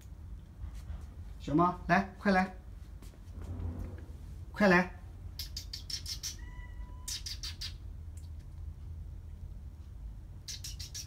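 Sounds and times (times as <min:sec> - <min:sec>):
kissing squeaks with lips: 0:05.3 - 0:07.8, 0:10.4 - 0:11.0.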